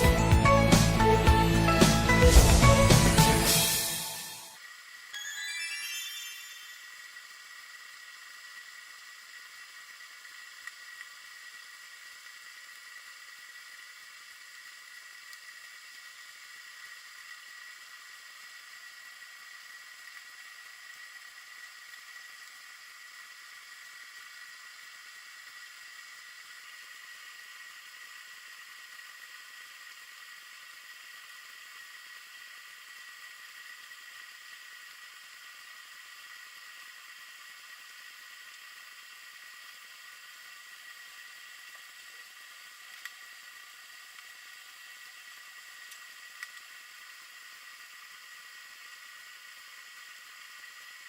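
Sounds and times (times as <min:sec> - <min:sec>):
faint high whine: 0:00.0 - 0:08.4
recording hiss: 0:00.0 - 0:13.3
faint ticks: 0:42.9 - 0:43.2, 0:45.8 - 0:46.7.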